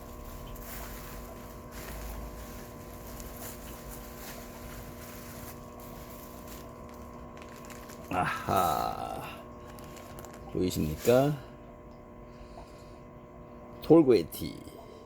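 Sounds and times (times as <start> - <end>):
package rustling: 0.0 - 11.5
electrical hum with low rumble: 0.0 - 15.0.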